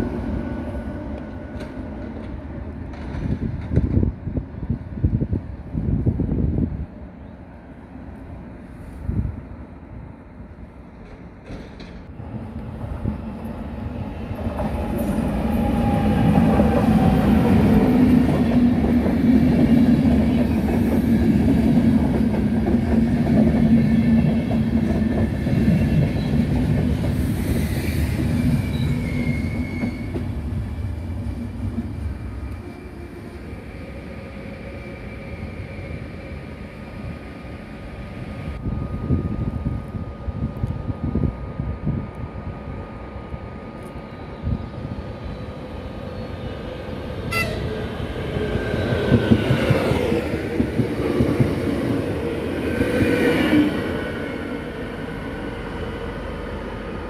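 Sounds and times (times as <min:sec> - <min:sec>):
train rolling rumble: 0:00.0 - 0:07.7, 0:08.6 - 0:57.0
wheels squealing: 0:27.3 - 0:30.3.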